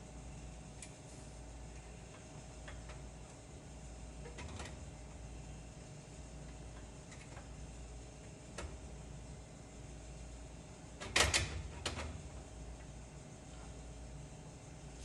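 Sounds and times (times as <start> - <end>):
steady low hum: 12.0 - 15.0.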